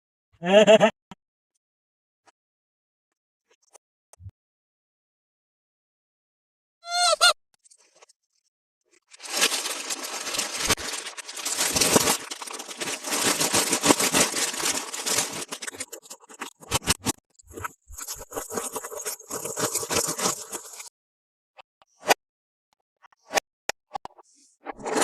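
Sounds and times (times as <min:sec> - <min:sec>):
scraping and rustling of packaging: 0:09.0 - 0:20.9.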